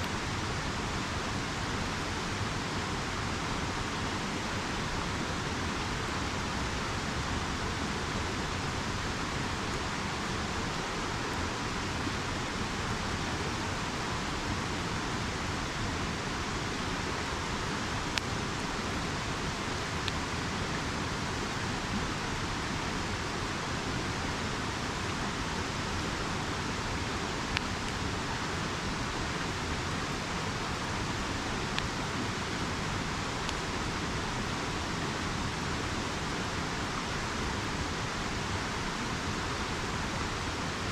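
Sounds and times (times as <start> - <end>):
river rushing: 0.0 - 40.9.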